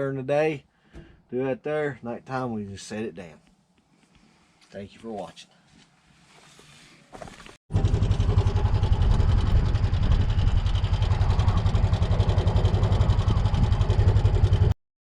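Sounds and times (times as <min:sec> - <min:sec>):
engine running with rapid pulse: 0:07.7 - 0:14.8.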